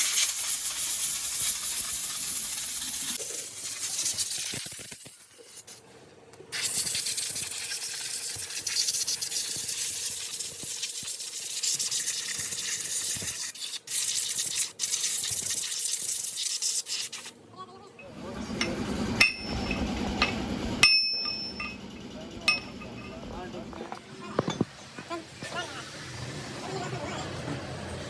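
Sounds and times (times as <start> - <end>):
high-pitched hissing air tool: 0.0 - 5.8, 6.6 - 17.3.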